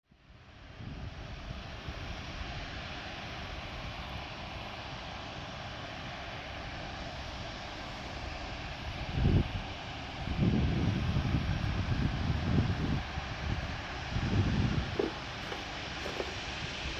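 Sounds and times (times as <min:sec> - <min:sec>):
jet engines at takeoff power: 0:00.1 - 0:16.9
wind buffeting microphone: 0:10.3 - 0:16.9.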